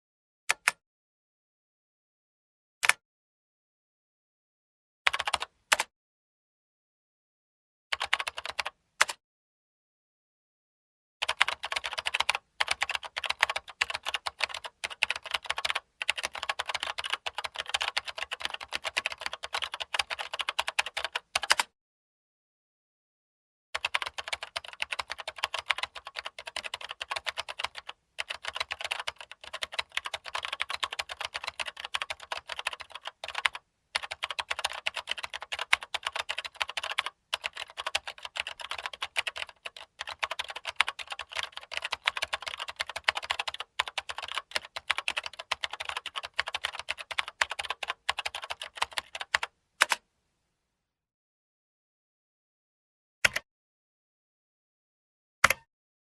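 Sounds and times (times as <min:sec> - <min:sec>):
fast keyboard typing: 0:05.1 - 0:05.5, 0:08.0 - 0:08.7, 0:11.2 - 0:21.6, 0:23.8 - 0:50.0.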